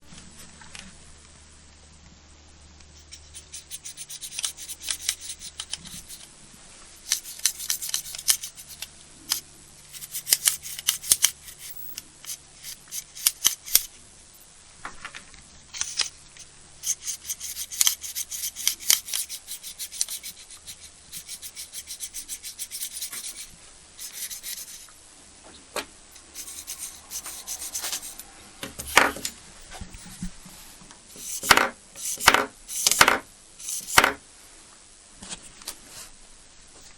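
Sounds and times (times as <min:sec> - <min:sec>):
rubbing and scraping strokes: 0:03.0 - 0:06.3, 0:07.0 - 0:14.0, 0:15.7 - 0:24.9, 0:26.1 - 0:34.2.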